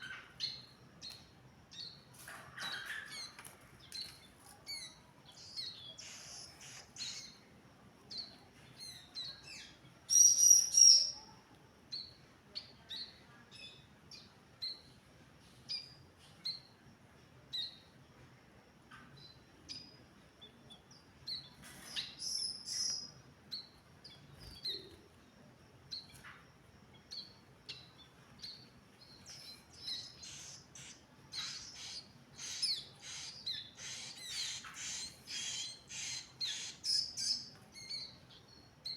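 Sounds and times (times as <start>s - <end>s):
bird giving high chirps: 10.1s - 11.2s.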